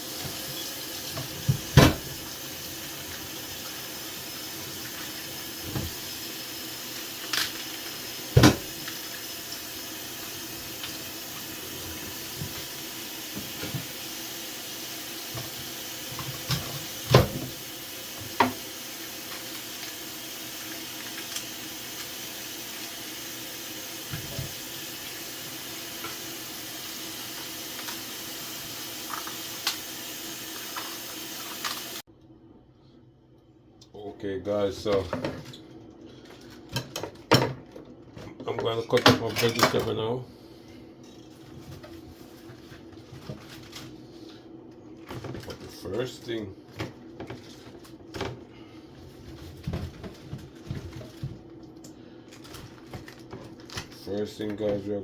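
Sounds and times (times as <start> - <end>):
tap water running into basin: 0.0 - 32.0.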